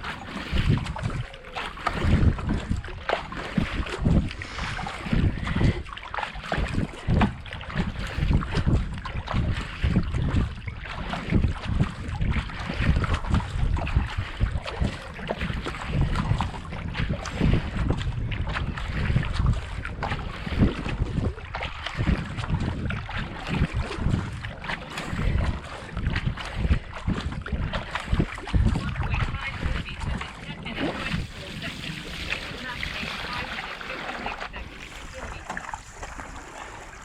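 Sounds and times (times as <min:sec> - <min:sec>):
kayak paddles splashing in water: 0:00.0 - 0:37.0
wind buffeting microphone: 0:00.0 - 0:37.0.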